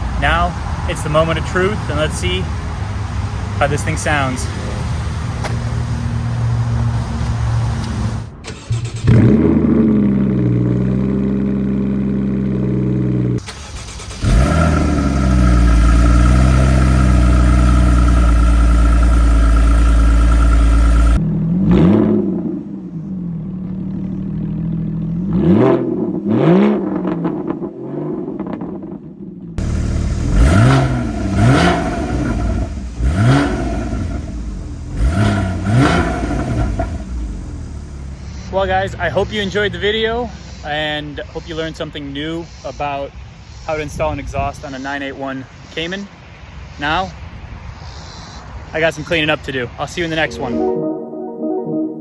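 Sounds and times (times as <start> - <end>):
car engine idling and revving: 0.0 - 40.6.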